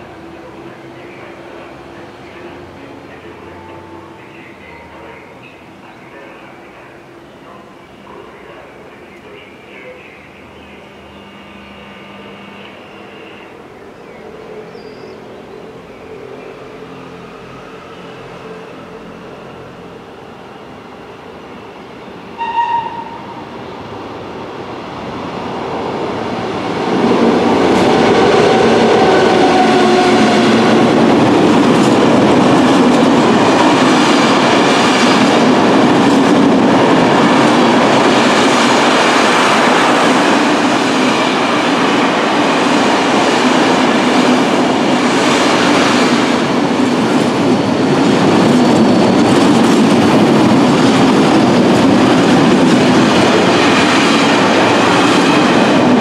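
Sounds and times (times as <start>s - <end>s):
train wheels rolling over rails: 25.0s - 56.0s.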